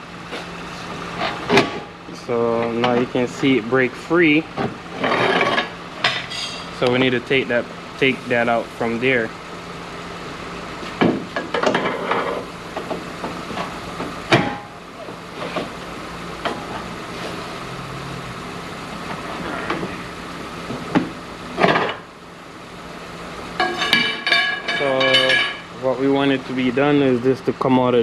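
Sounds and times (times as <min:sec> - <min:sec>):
steady hum: 0:00.0 - 0:28.0
metal knocks and clanks of tools: 0:11.0 - 0:12.4, 0:23.6 - 0:25.6.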